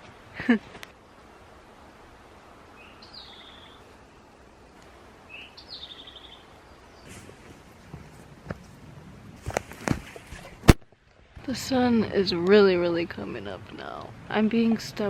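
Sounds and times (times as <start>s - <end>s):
forest ambience hiss: 0.0s - 10.6s
songbird singing: 2.6s - 8.8s
soft footfalls: 7.1s - 10.8s.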